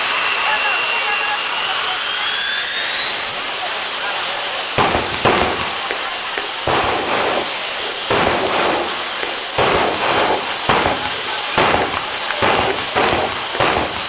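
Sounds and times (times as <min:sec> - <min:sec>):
jet turbine engine whine: 0:00.0 - 0:14.0
gusts of rushing noise: 0:04.8 - 0:14.0.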